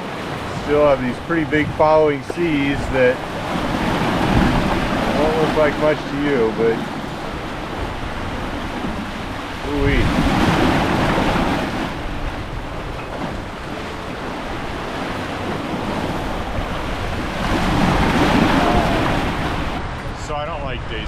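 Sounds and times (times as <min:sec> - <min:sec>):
seas rushing around a boat: 0:00.0 - 0:21.0
wind buffeting the microphone: 0:00.0 - 0:21.0.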